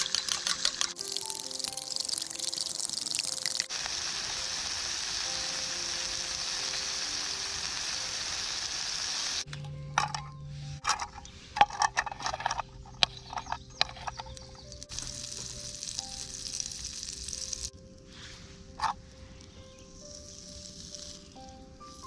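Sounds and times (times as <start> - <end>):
sausage sizzling in a pan: 0.0 - 9.5, 13.4 - 17.8, 18.8 - 22.0
utensil scraping a pan: 9.9 - 15.1.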